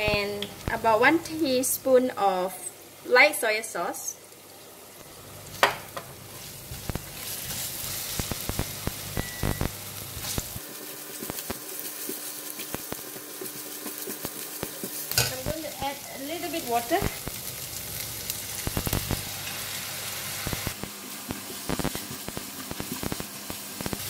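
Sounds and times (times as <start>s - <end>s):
paste sizzling in hot oil: 5.1s - 24.0s.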